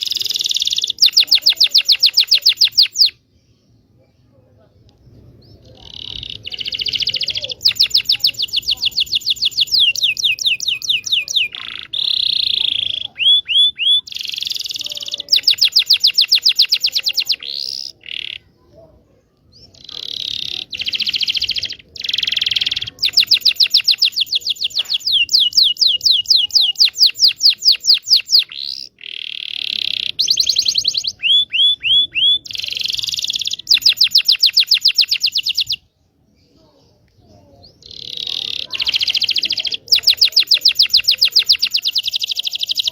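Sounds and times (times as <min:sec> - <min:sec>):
canary singing: 0:00.0 - 0:03.4, 0:05.3 - 0:18.7, 0:19.4 - 0:42.9.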